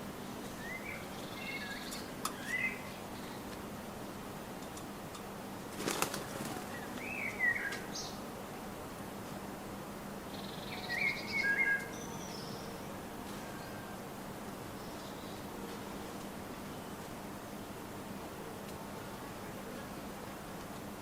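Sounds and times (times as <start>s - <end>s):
bird chirping: 0.5s - 3.4s, 10.3s - 12.9s
bird wings fluttering: 5.7s - 7.1s.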